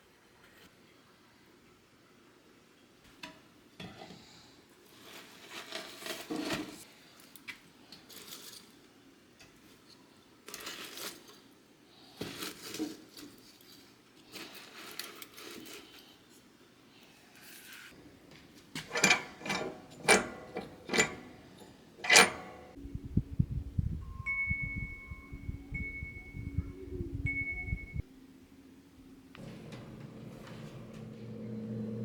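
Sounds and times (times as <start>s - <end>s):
objects clinking and clattering: 18.8s - 22.8s.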